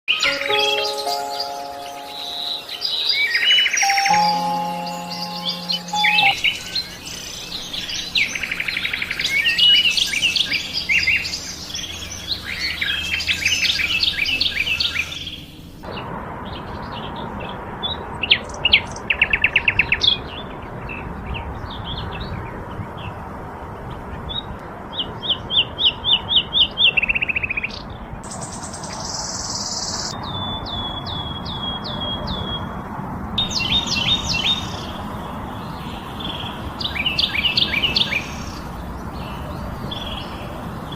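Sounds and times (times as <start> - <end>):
songbirds chirping and singing: 0.1 - 15.9, 33.4 - 40.9.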